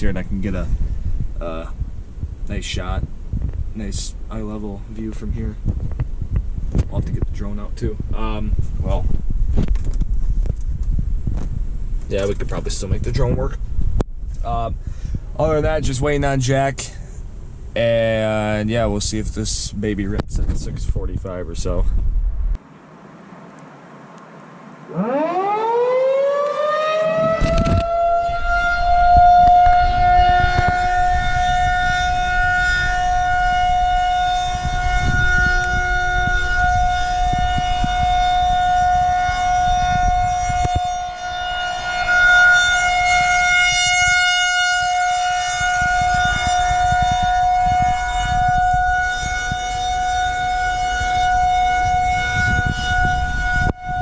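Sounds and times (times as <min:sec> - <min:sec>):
siren winding up: 0:24.9 - 0:54.0.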